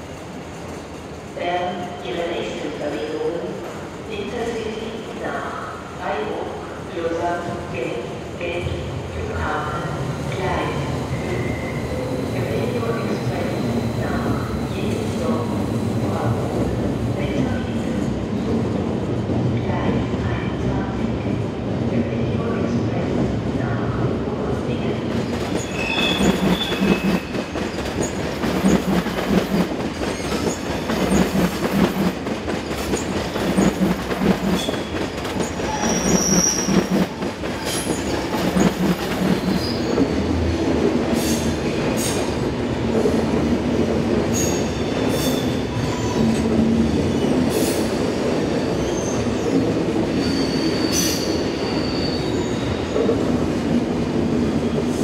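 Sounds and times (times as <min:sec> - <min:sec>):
train rumble: 0:07.7 - 0:44.4
wheel squeals: 0:35.5 - 0:36.9.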